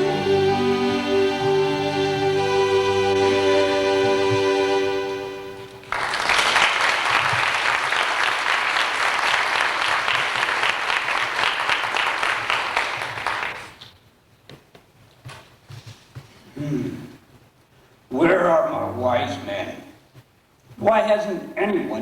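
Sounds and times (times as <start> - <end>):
sustained music chord: 0.0 - 5.8
audience applauding: 5.7 - 13.8.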